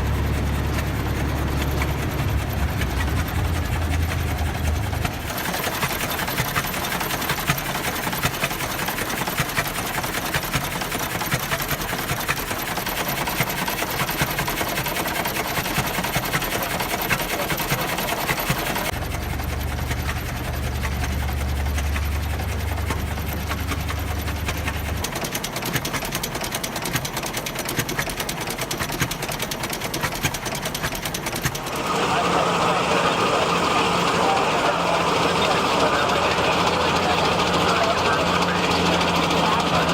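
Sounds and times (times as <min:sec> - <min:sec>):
deeper drone: 0:00.0 - 0:06.6, 0:31.6 - 0:39.9
tractor engine clattering: 0:00.0 - 0:39.9.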